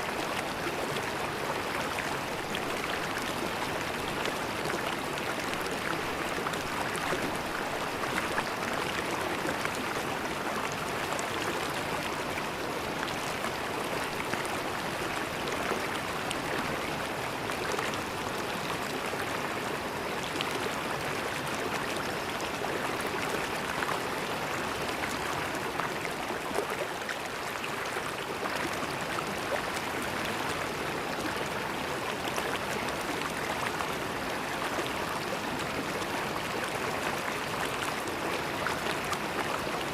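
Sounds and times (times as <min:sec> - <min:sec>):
river water flowing and gurgling: 0:00.0 - 0:39.9.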